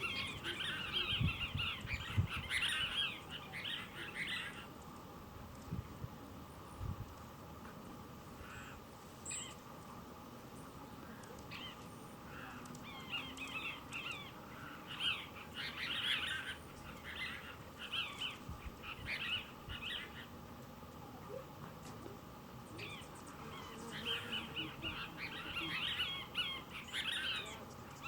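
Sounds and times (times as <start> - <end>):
bird chattering calls: 22.8 - 27.6.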